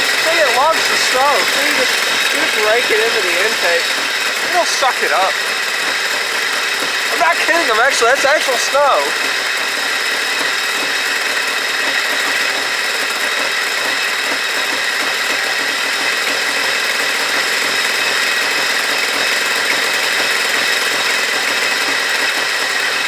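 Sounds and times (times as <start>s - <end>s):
snow being sucked into intake: 0.0s - 5.3s
car engine idling: 0.0s - 23.0s.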